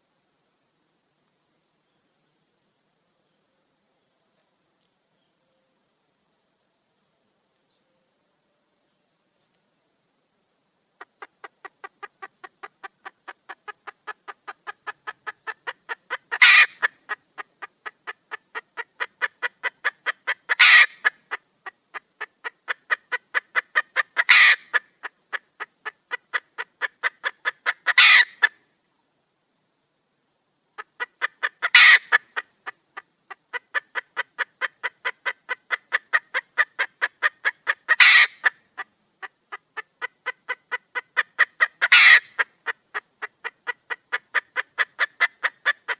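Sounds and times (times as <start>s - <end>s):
hen cackling and squawking: 11.0s - 28.6s, 30.7s - 45.9s.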